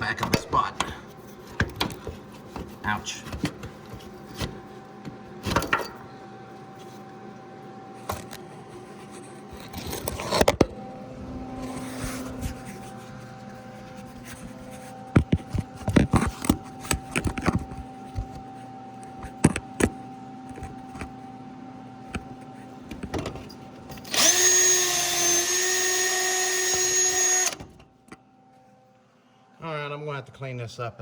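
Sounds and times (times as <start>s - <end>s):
electric power tool whining: 23.9s - 27.8s.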